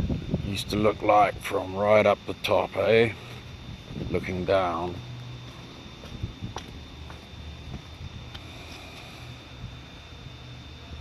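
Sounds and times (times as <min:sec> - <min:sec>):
low outdoor rumble and hiss: 0:00.0 - 0:11.0.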